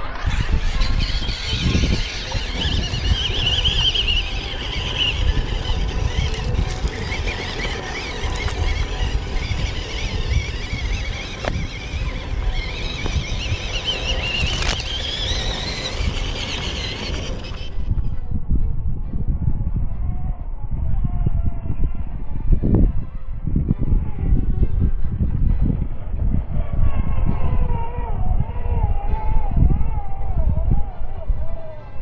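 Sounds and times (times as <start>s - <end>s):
small electric motor whining: 0.0s - 18.1s
low rumble: 0.0s - 31.4s.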